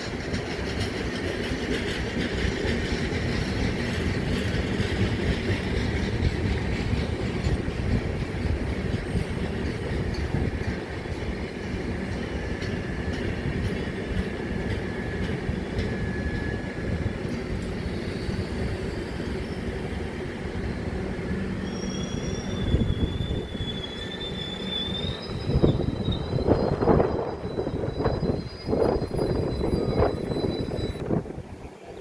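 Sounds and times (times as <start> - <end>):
train rumbling on rails: 0.0 - 32.0
high wheel squeal: 15.0 - 31.1.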